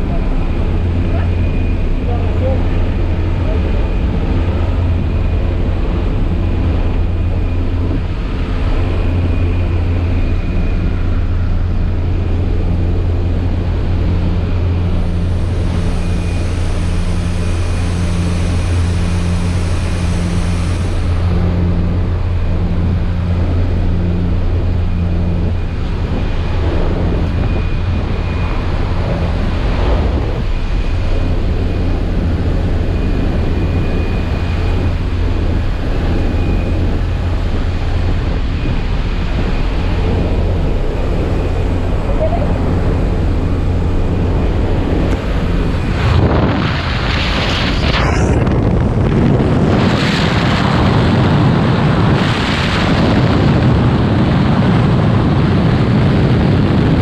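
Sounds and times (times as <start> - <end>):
diesel engine droning: 0.0 - 57.0
high hiss: 15.0 - 21.8.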